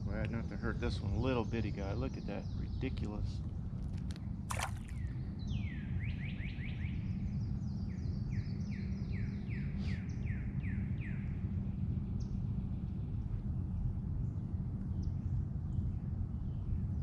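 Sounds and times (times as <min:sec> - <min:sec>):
songbird singing: 0:00.0 - 0:11.3.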